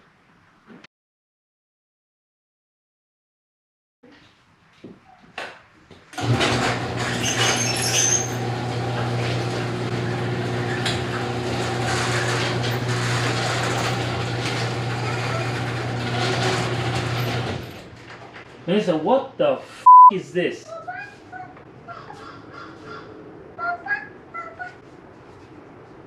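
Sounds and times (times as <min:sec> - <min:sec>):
garage door motor humming: 0:06.2 - 0:18.3
garage door rattling: 0:06.2 - 0:18.4.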